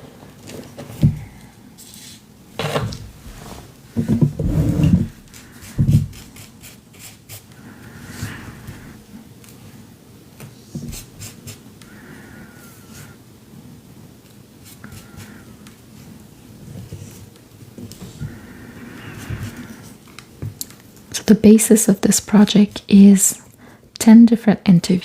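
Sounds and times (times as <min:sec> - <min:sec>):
paper rustling and rubbing: 0:04.4 - 0:07.5.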